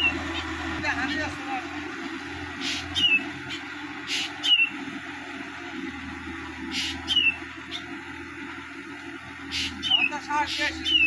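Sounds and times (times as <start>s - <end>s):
distant tractor drone: 0.0s - 11.0s
bird rasping call and whistle: 2.6s - 4.8s, 6.7s - 7.9s, 9.5s - 11.0s.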